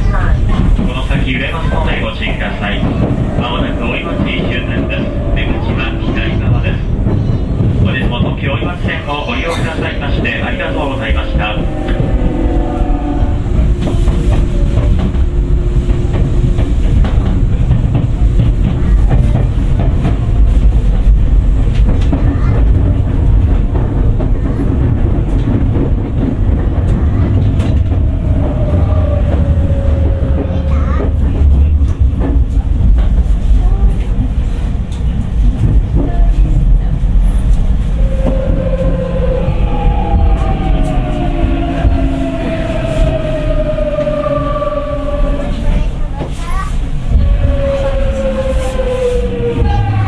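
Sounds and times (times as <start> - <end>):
train inverter whining: 0.0 - 50.0
low rumble of running gear: 9.8 - 33.5.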